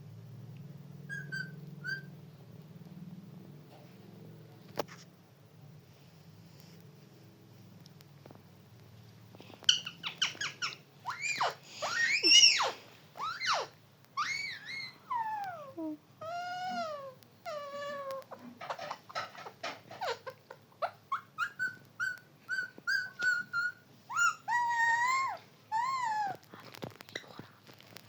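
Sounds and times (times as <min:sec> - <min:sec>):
parrot calling: 0:01.1 - 0:02.1, 0:09.6 - 0:26.4.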